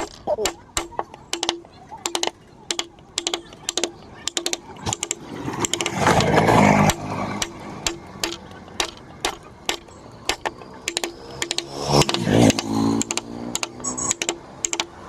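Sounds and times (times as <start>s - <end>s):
mallet tapping chisel into wood: 0.0s - 15.0s
rough humming noise: 0.0s - 15.0s.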